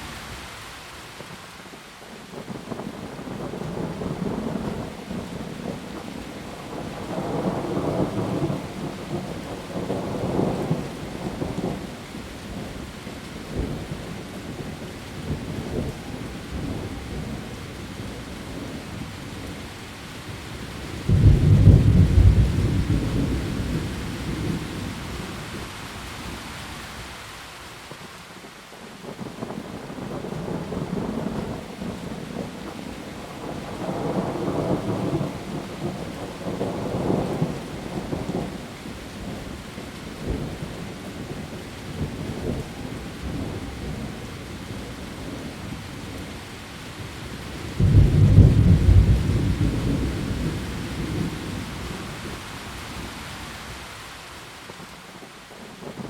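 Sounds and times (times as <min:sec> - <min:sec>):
heavy rain: 0:00.0 - 0:56.0
thunder rumbling: 0:20.9 - 0:25.7, 0:47.4 - 0:53.2.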